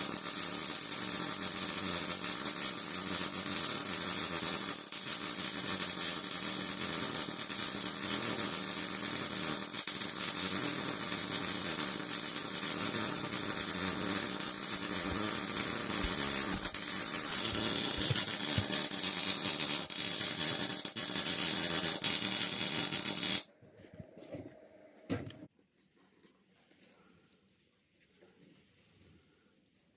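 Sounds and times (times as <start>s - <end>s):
welding arc crackling hiss: 0.0s - 23.5s.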